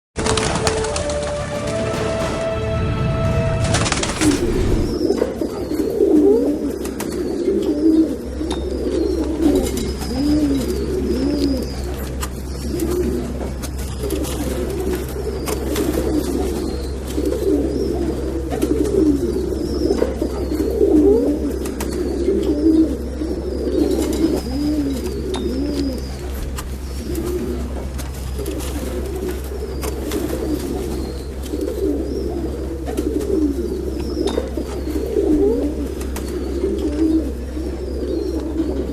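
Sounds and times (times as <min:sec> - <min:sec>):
pigeons cooing: 0:31.5 - 0:38.9.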